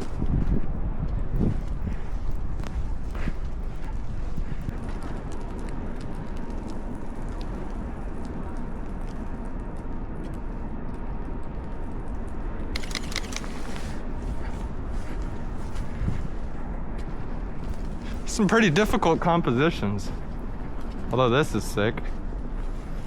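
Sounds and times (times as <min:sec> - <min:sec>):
wind buffeting microphone: 0:00.0 - 0:23.0
footsteps in snow: 0:12.8 - 0:23.0.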